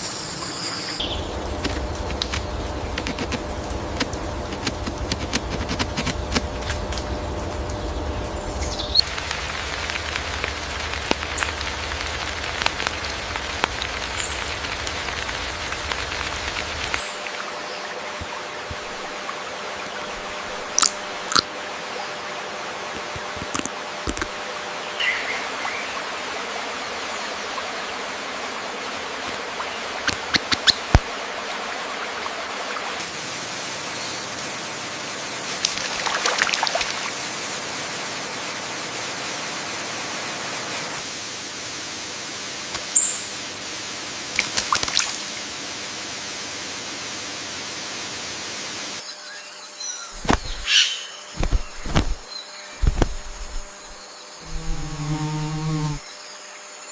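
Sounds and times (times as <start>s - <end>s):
hiss of running water: 0.0s - 24.3s, 24.9s - 49.0s, 50.2s - 50.8s, 51.4s - 56.1s
bird chirps and clicks: 30.1s - 31.0s.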